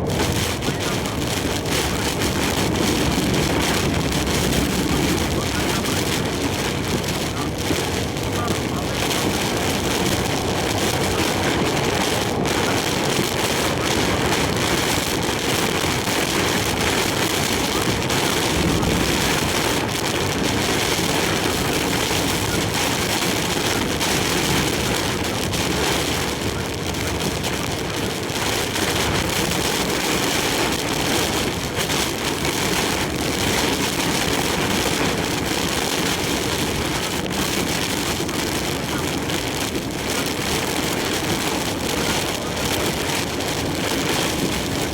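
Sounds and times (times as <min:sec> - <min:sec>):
truck engine: 0:00.0 - 0:31.5
heavy rain hitting truck: 0:00.0 - 0:44.9
road noise: 0:00.0 - 0:44.9
strong wind: 0:00.0 - 0:44.9.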